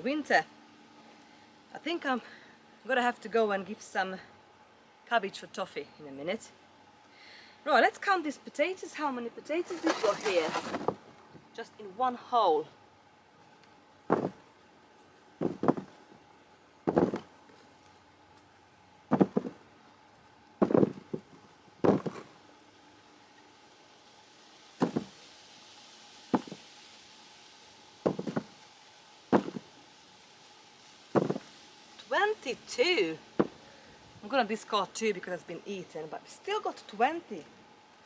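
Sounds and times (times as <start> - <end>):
potatoes knocking onto a pile: 9.7 - 11.0, 14.1 - 14.4, 16.9 - 17.3, 19.1 - 19.6, 20.6 - 22.3, 24.8 - 25.2, 26.3 - 26.6, 28.1 - 28.5, 29.3 - 29.7, 31.2 - 31.5.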